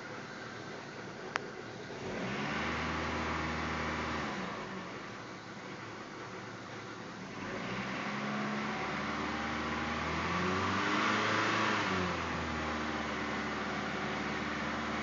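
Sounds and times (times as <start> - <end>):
car engine revving: 1.8 - 5.2, 7.3 - 15.0.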